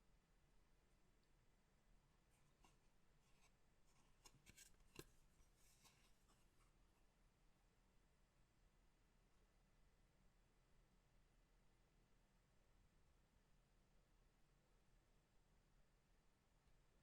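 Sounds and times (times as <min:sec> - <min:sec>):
trading cards being handled: 0:03.3 - 0:06.2.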